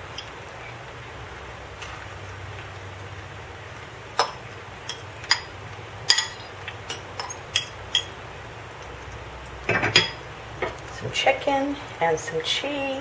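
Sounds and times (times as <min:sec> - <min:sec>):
tortillas sizzling in oil: 0:00.0 - 0:11.0
utensil tapping a skillet: 0:04.1 - 0:08.2.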